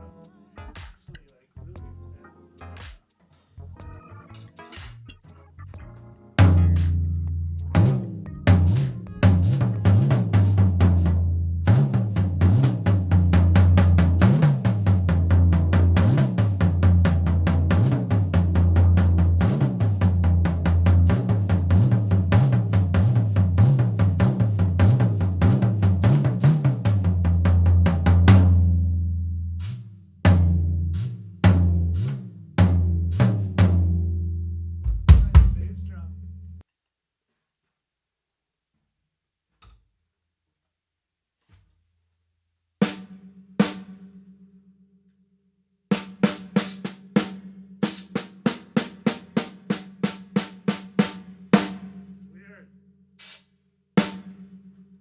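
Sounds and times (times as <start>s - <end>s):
drum kit hits: 5.8s - 28.6s, 34.9s - 35.9s
drum hits ringing: 6.4s - 7.0s, 7.6s - 12.7s, 34.9s - 35.8s.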